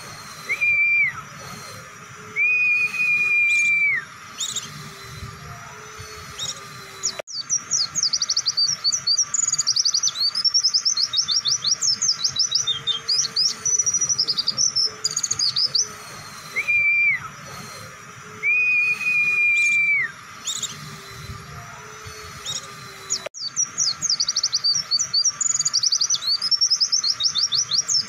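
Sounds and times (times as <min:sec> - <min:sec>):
bird chirping fast high notes: 0:00.0 - 0:28.0
bird whistled notes: 0:00.0 - 0:28.0.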